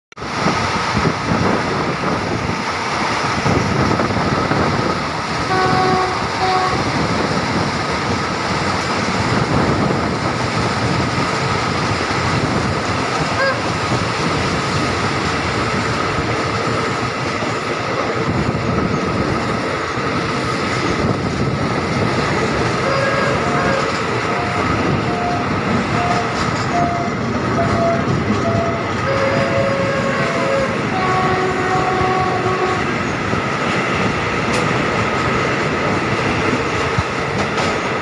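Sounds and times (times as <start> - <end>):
rushing air: 0.1 - 38.0
train wheels rumbling: 0.1 - 38.0.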